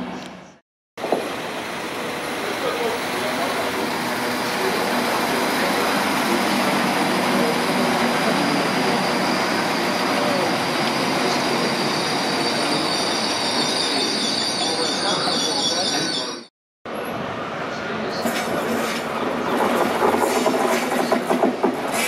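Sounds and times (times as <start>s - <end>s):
train engine and wheels rumbling: 0.0s - 22.0s
high squeal: 7.3s - 16.5s.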